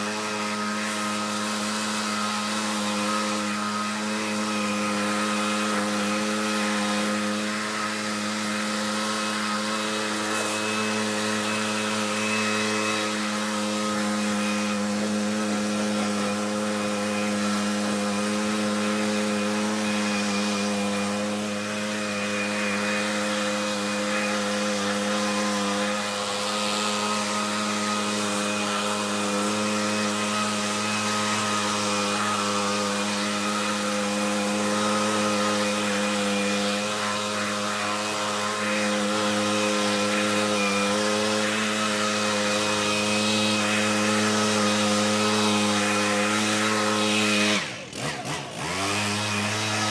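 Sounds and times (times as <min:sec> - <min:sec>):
leaf blower engine running: 0:00.0 - 0:49.9.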